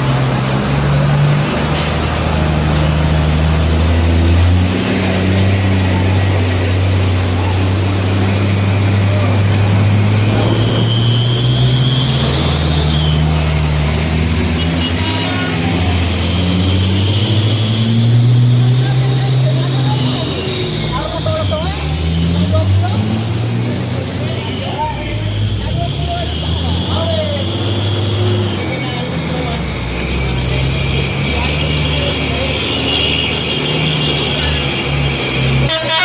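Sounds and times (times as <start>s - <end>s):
truck diesel engine under load: 0.0s - 36.0s.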